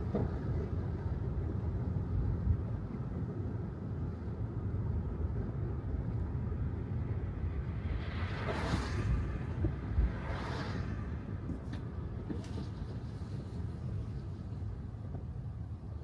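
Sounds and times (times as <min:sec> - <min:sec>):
tyre noise on wet road: 0:07.8 - 0:13.8.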